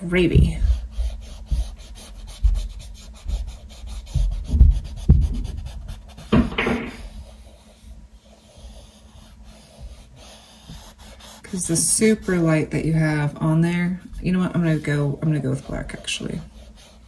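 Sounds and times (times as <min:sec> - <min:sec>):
scrubbing strokes on canvas: 0:00.0 - 0:06.4, 0:07.0 - 0:17.0
low thumps: 0:00.2 - 0:07.3.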